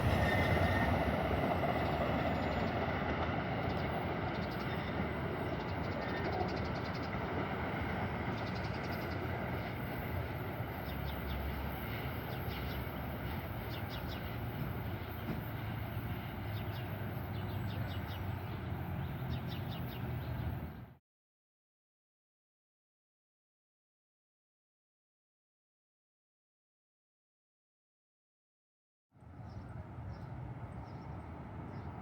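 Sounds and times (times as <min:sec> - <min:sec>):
train rumbling on rails: 0:00.0 - 0:21.0, 0:29.2 - 0:32.0.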